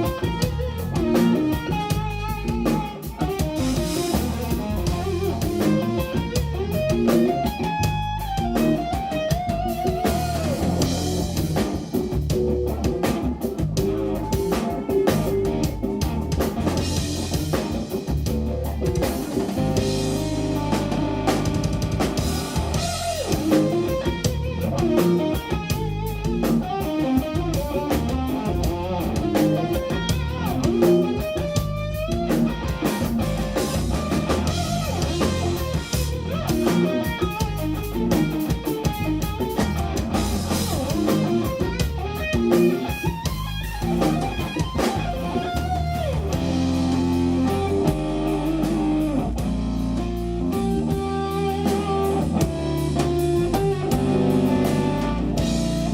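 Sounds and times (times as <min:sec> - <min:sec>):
bass line: 0:00.0 - 0:55.9
drum kit: 0:00.0 - 0:55.9
electric guitar melody: 0:00.0 - 0:55.9.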